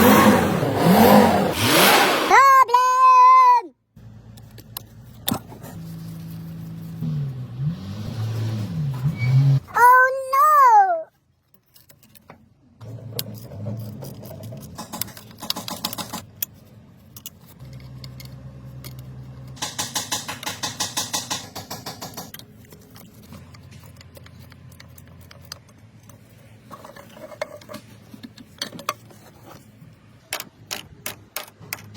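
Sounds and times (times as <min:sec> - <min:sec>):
metallic clicking and clatter: 0:11.4 - 0:31.9.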